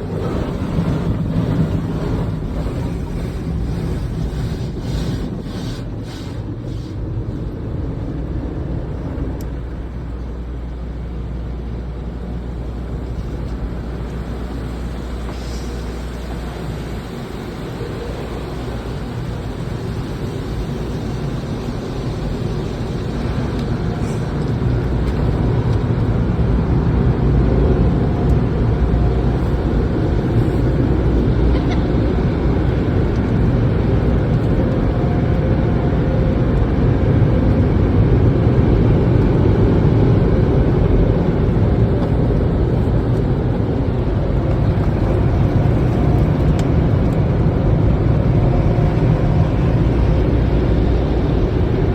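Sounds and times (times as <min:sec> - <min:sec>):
car wash machinery: 0:00.0 - 0:51.9.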